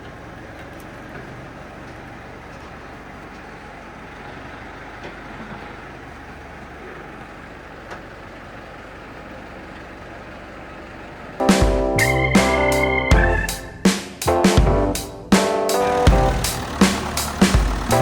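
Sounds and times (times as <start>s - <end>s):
vehicle engine rumbling: 0.0s - 18.0s
loud piano and drum music: 11.4s - 18.0s.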